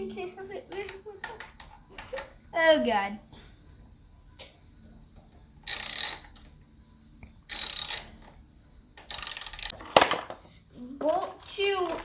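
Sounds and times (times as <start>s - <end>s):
ratchet wrench clicking: 5.6s - 6.5s, 7.5s - 8.2s, 9.0s - 9.8s.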